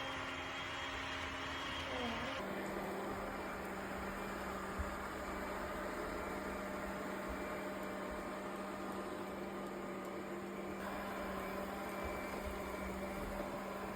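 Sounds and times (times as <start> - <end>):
robot vacuum motor hum: 0.0 - 13.9.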